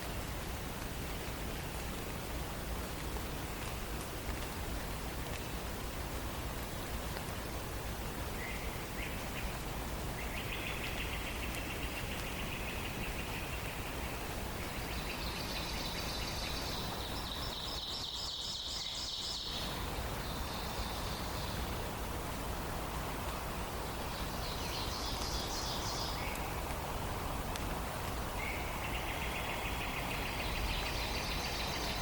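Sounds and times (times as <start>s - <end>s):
steady background hiss: 0.0s - 32.0s
songbirds singing rapid trills: 10.2s - 21.8s, 24.0s - 26.6s, 28.4s - 32.0s.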